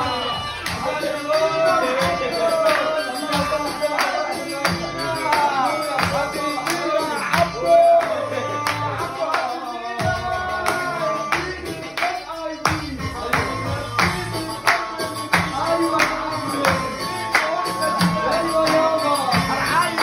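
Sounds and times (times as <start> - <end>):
drums and hand percussion: 0.0 - 20.0
live band music: 0.0 - 20.0.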